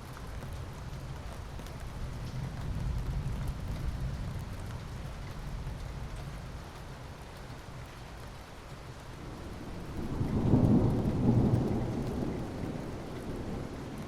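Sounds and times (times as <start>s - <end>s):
steady rain falling: 0.0s - 14.0s
low rumble of thunder: 0.3s - 7.3s, 8.8s - 14.0s.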